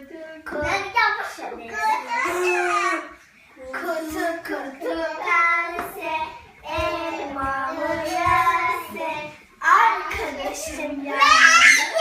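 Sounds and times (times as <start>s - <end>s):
child singing: 0.0s - 12.0s.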